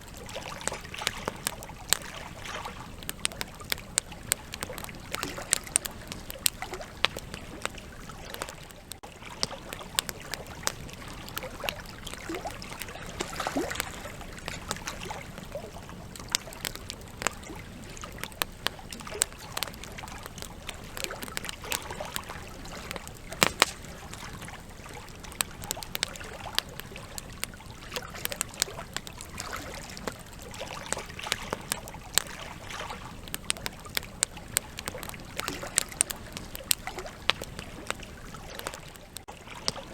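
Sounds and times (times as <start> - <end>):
burning logs popping: 0.0 - 39.9
campfire crackling and hissing: 0.0 - 39.9.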